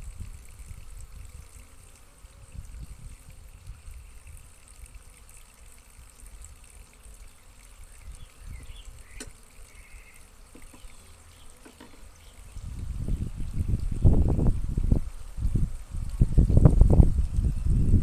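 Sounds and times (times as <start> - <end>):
honeybees humming: 0.0 - 17.8.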